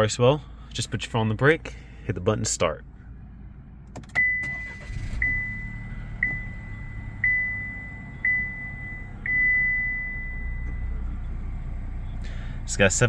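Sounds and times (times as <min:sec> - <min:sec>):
engine cranking and idling: 0:00.2 - 0:13.0
dashboard warning chime: 0:04.2 - 0:10.9.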